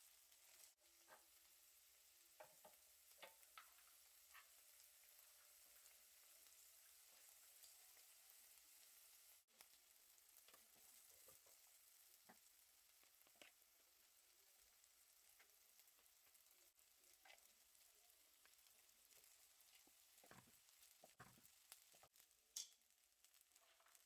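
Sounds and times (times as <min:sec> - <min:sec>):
faint sizzling of frying food: 0:00.0 - 0:24.0
utensil scraping and tapping pan: 0:02.4 - 0:04.6.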